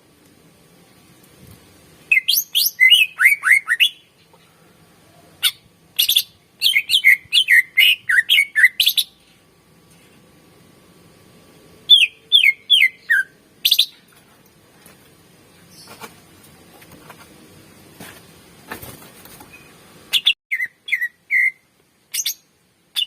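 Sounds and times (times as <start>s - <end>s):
bird singing whistled notes: 2.1s - 4.1s, 5.4s - 9.2s, 11.9s - 14.0s, 19.5s - 23.0s.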